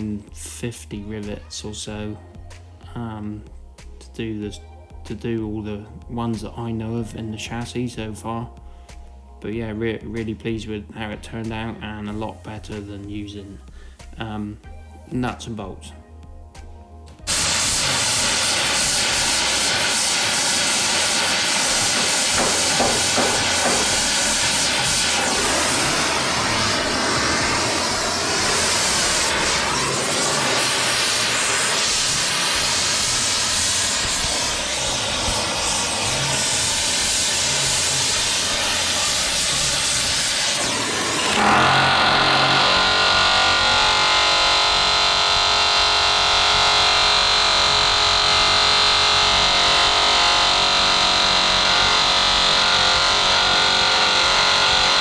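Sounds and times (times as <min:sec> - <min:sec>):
steady tones: 0:16.5 - 0:55.0
loud steady hissing: 0:17.3 - 0:55.0.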